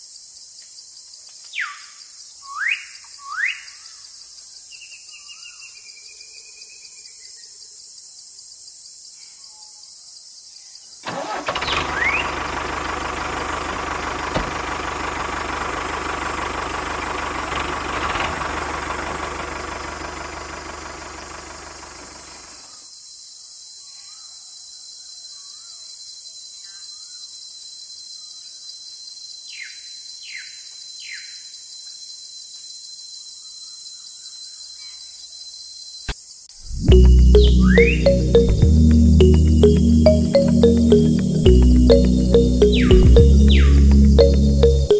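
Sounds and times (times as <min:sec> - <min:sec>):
motor running: 0:11.5 - 0:22.6.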